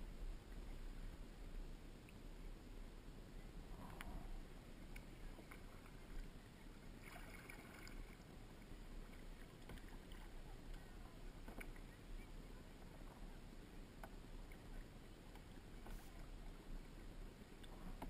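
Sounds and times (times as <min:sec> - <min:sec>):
low steady rumble: 0:00.0 - 0:18.0
paddle dipping in water: 0:03.7 - 0:18.0
small knocks and ticks: 0:09.6 - 0:09.9.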